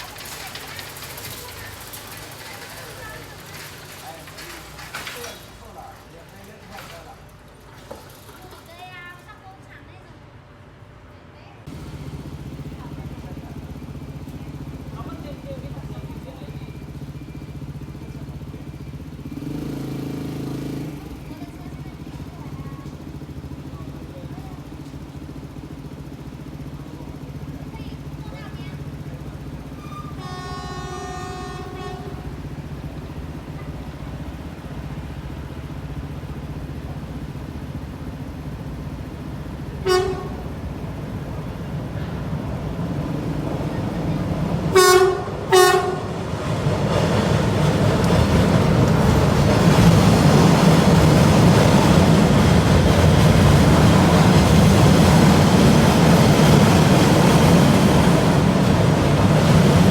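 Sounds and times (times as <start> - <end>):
train passing rumble: 0.0 - 59.9
train horn blasts: 29.8 - 32.4, 39.8 - 40.6, 44.7 - 46.2.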